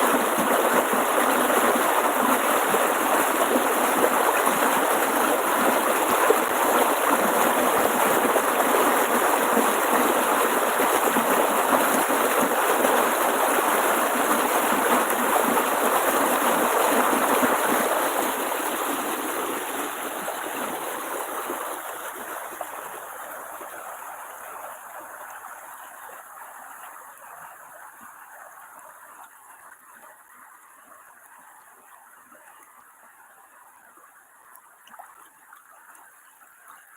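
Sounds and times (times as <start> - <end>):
water rushing over a weir: 0.0 - 27.0.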